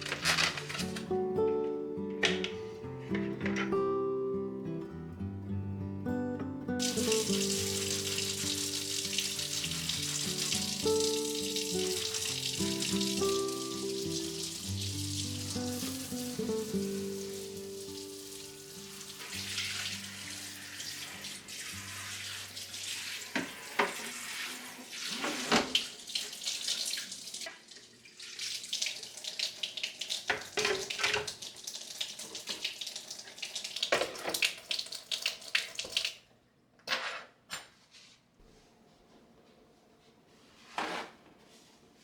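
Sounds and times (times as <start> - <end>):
clinks and knocks of objects: 0.0 - 1.1
tap water running into sink: 6.8 - 36.3.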